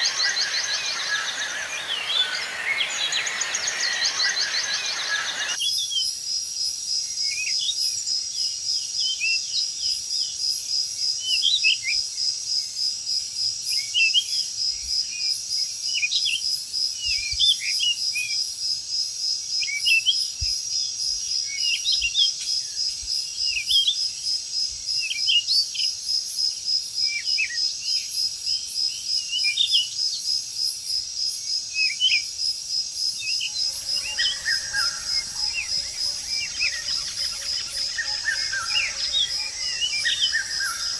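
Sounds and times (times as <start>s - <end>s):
high pulsing insect trill: 0.0s - 5.6s, 33.5s - 40.9s
rising bird chirps: 0.0s - 5.6s, 33.4s - 40.9s.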